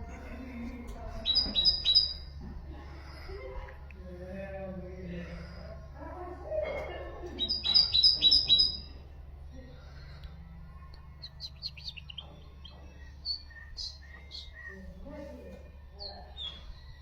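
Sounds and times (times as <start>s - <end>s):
soft bird chirps: 1.2s - 2.4s, 7.4s - 15.2s
songbird singing high notes: 7.4s - 8.9s.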